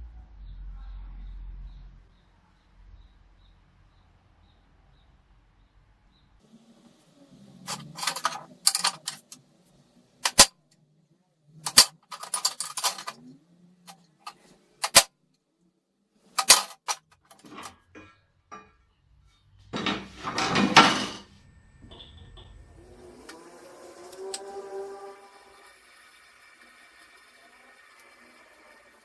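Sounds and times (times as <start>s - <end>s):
metal rattling clatter: 7.7s - 9.3s, 11.7s - 13.2s, 16.4s - 18.8s, 19.7s - 21.3s
metal tools clinking and clattering: 7.7s - 9.3s, 11.7s - 13.2s, 16.4s - 18.8s, 19.7s - 21.3s.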